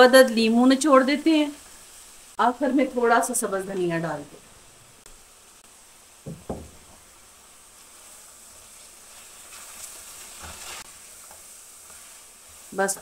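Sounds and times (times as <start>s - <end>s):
food sizzling in pot: 0.0s - 13.0s
soft knocks: 6.2s - 7.0s
spatula stirring and scraping pan: 6.8s - 13.0s.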